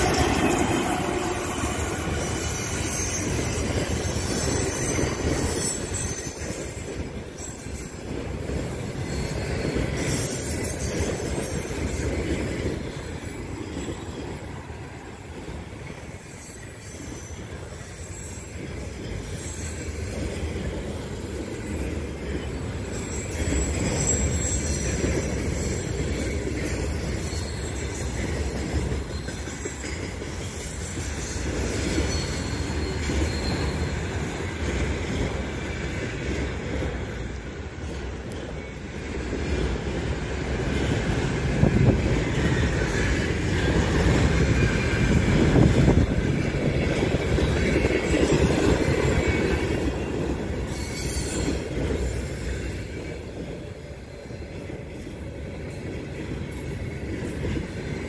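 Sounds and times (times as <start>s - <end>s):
high wheel squeal: 0.0s - 12.1s, 22.9s - 46.1s, 47.4s - 53.4s
freight train wheels rumbling: 0.0s - 58.0s.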